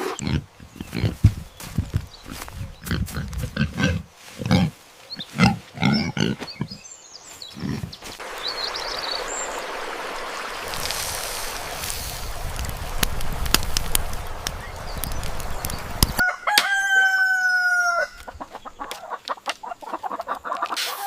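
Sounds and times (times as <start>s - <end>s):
low animal grunts: 0.0s - 1.3s, 2.8s - 6.8s, 7.5s - 8.0s
steady hiss: 8.0s - 16.2s.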